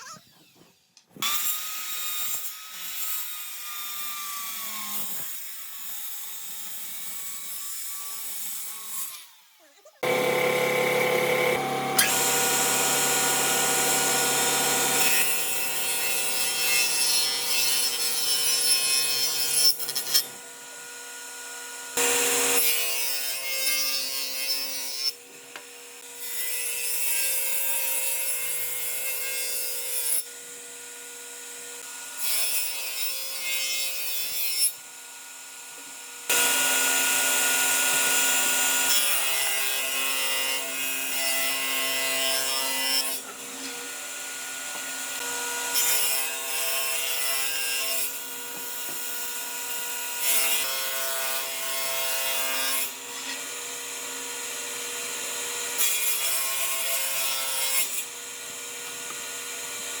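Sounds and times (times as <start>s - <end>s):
power tool working wood: 10.0s - 24.0s, 35.2s - 60.0s.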